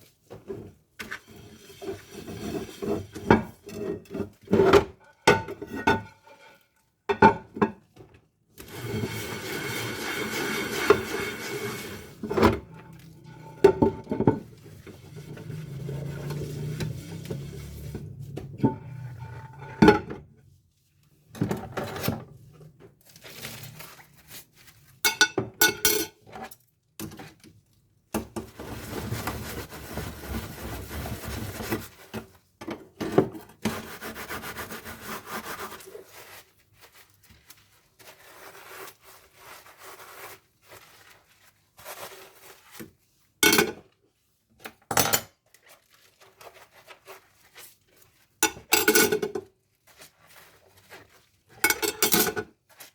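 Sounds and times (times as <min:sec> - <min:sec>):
scrubbing dishes: 0:08.6 - 0:20.3, 0:45.9 - 0:52.9
dishes and cutlery clinking: 0:25.1 - 0:26.2, 0:48.4 - 0:49.5, 0:51.6 - 0:52.5.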